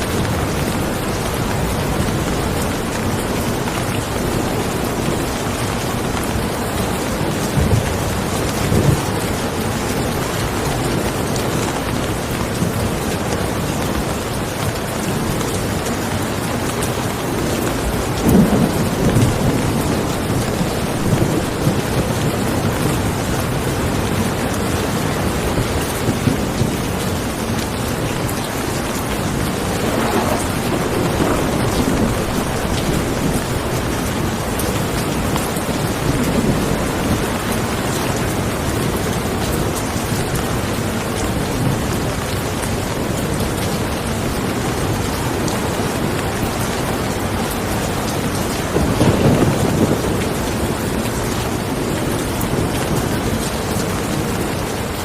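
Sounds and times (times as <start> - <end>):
thunder rumbling: 0.0 - 12.9, 16.3 - 40.6, 47.9 - 54.8
heavy rain: 0.0 - 55.0.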